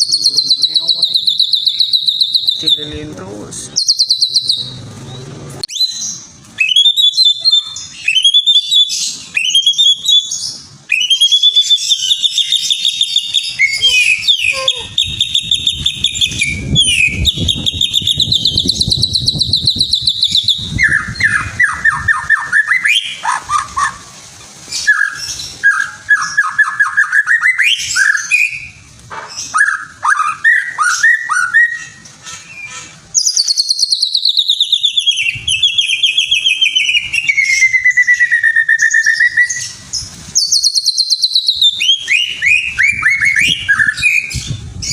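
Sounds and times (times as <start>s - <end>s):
songbird trilling: 0.0s - 3.1s, 3.7s - 24.0s, 29.4s - 44.6s.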